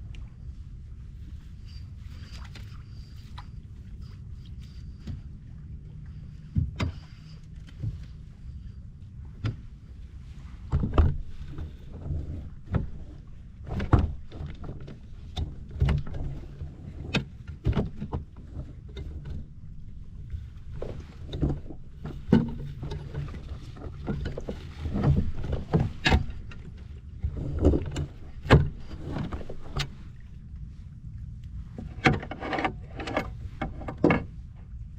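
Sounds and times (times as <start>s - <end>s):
steady low hum: 0.0s - 34.9s
gear knocking against kayak hull: 20.7s - 30.1s.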